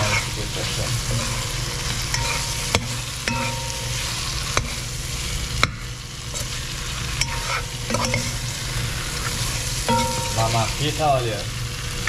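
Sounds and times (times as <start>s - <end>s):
fish sizzling in a pot: 0.0s - 12.0s
metal spoon knocking a pot: 2.2s - 4.7s, 9.9s - 10.6s.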